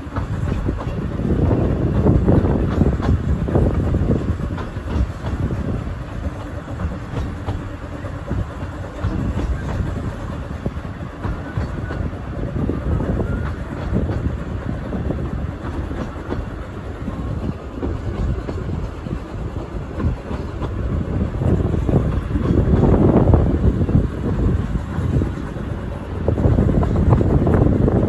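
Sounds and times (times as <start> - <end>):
clatter over rail joints: 0.0 - 28.0
train wheels rumbling: 0.0 - 28.0.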